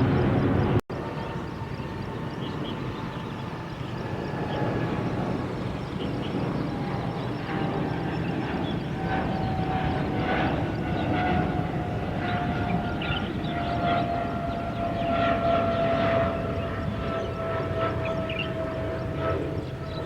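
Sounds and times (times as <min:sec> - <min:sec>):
jet engines roaring past: 0:00.0 - 0:20.0.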